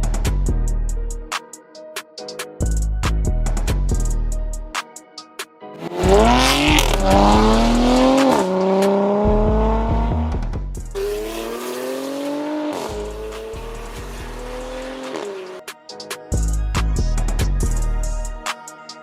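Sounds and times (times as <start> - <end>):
music with a beat: 0.0 - 19.0
car engine accelerating hard: 5.8 - 15.6.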